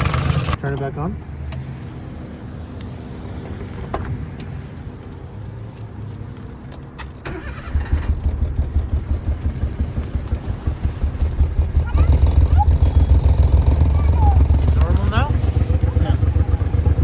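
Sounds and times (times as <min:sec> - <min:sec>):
car engine rough idle: 0:07.2 - 0:17.0.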